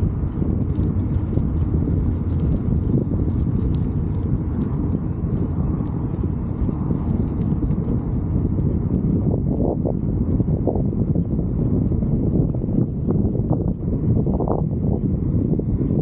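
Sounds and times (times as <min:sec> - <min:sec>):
bicycle ticking and rattling: 0:00.0 - 0:16.0
wind buffeting microphone: 0:00.0 - 0:16.0.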